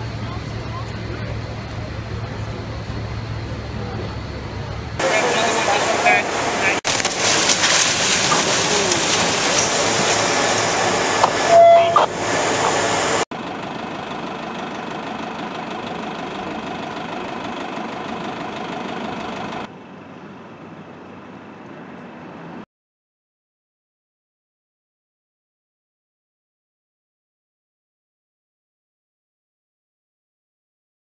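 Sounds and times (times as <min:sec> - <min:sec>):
vehicle engines running: 0:00.0 - 0:22.6
short steady tone: 0:10.9 - 0:13.2.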